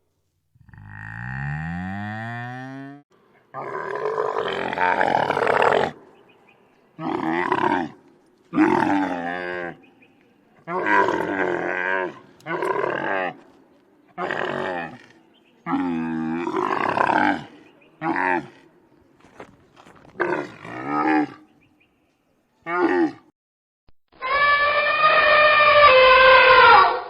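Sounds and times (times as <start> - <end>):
cow mooing: 0.6 - 3.0
big cat roaring: 0.6 - 6.0, 7.0 - 9.8, 10.6 - 13.4, 14.2 - 18.6, 20.1 - 21.4.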